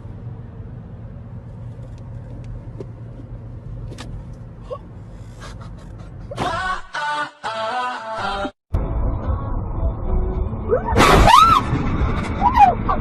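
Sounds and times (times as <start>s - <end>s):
car engine and road noise: 0.0s - 6.8s, 8.7s - 13.0s.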